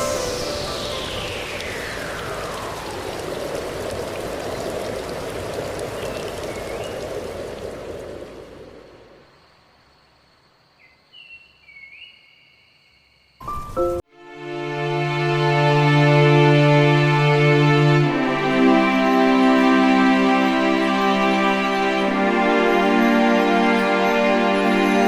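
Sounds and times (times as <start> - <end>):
waterfall rushing: 0.0 - 9.0, 14.3 - 25.0.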